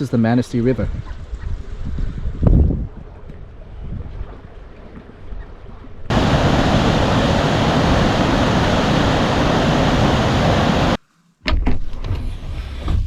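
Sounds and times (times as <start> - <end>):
loud steady rushing noise: 6.1 - 11.0.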